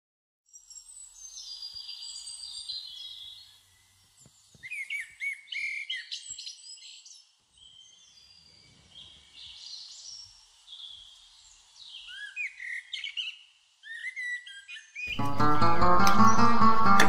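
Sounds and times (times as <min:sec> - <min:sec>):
birds chirping and singing: 0:01.2 - 0:15.5.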